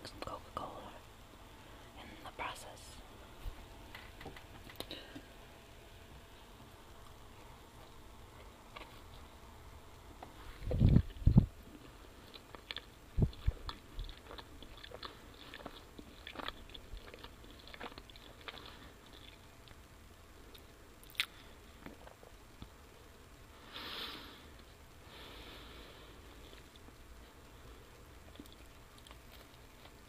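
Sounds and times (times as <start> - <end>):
person chewing and biting: 7.0 - 9.3, 10.6 - 19.8, 20.5 - 22.3, 28.2 - 30.0.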